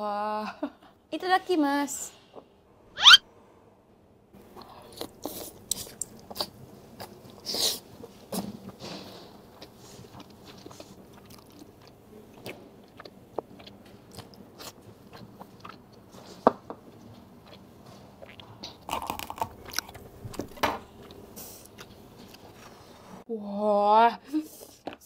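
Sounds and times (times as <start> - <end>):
person chewing wetly: 4.6 - 7.7, 9.5 - 22.5.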